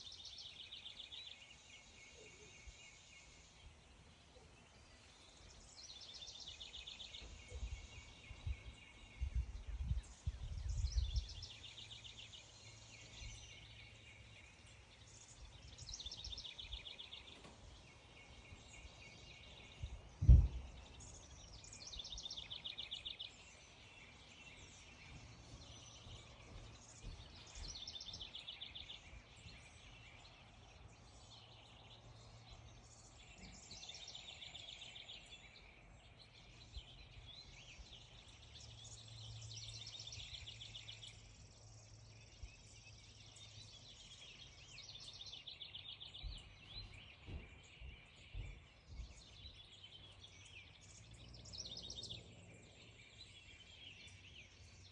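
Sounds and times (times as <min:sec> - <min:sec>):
low rumbling thumps: 0:19.8 - 0:20.9, 0:46.2 - 0:49.4.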